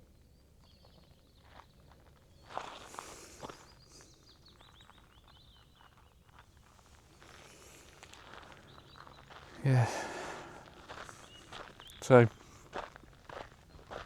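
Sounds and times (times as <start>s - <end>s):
footsteps outdoors: 0.6s - 14.0s
small bird chirping: 3.5s - 6.8s, 8.1s - 9.4s.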